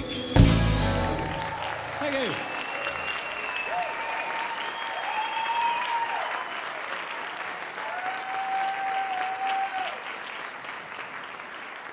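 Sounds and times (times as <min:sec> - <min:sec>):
crowd cheering: 0:00.0 - 0:11.9
audience applauding: 0:00.7 - 0:11.9.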